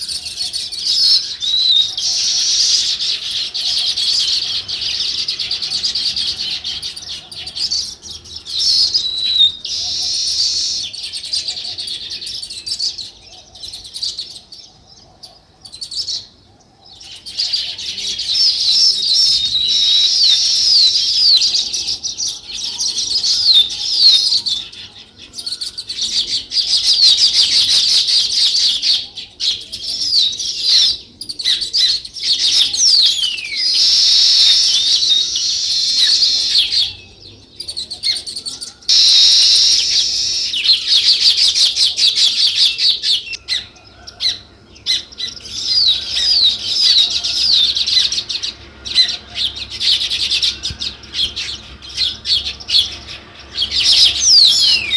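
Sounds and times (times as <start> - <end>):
small birds chattering: 0.0 - 54.9.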